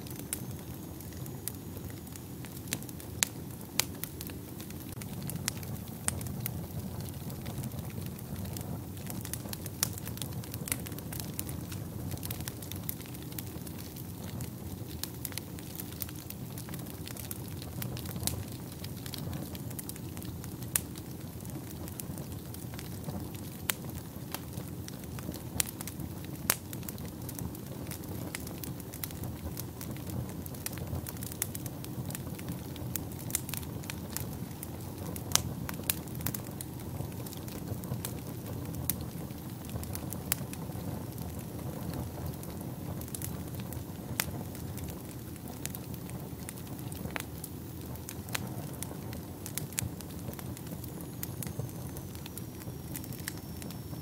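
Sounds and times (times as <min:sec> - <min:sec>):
fire crackling and popping: 0:00.0 - 0:54.0
low rush of flames: 0:00.0 - 0:54.0.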